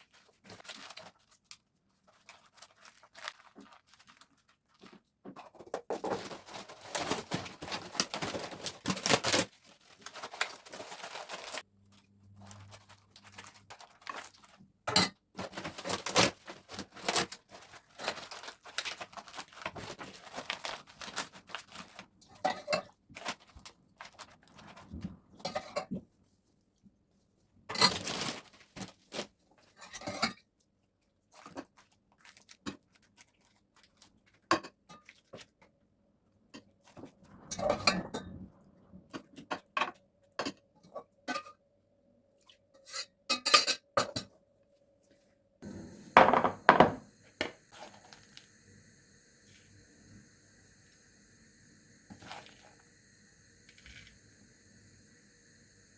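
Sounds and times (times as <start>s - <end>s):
hands rustling and tearing: 0.0s - 5.0s.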